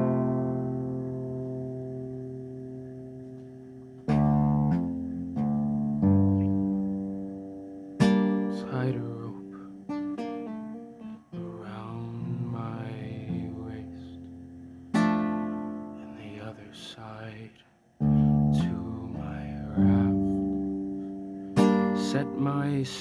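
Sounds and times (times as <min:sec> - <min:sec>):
acoustic guitar playing: 0:00.0 - 0:17.4, 0:18.0 - 0:23.0.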